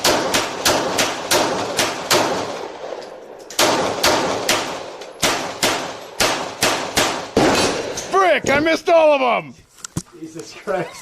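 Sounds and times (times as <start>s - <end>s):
pistol shots with echo: 0.0s - 8.6s.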